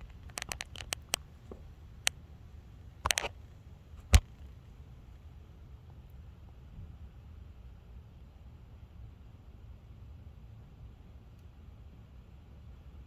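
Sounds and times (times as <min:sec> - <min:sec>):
sharp clicks and knocks: 0:00.0 - 0:02.2, 0:03.0 - 0:03.4, 0:04.0 - 0:04.5.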